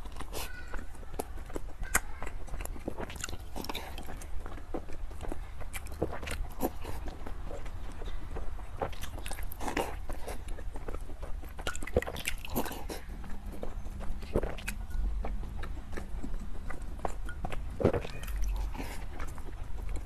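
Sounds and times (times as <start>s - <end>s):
chewing soft cake: 0.0s - 20.0s.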